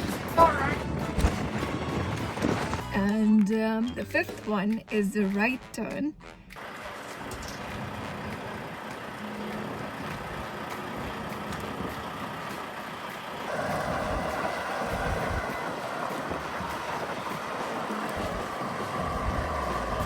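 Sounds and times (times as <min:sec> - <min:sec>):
wind noise on microphone: 0:00.0 - 0:03.0, 0:06.6 - 0:12.7, 0:13.5 - 0:20.0
truck engine running: 0:00.0 - 0:04.6, 0:06.5 - 0:20.0.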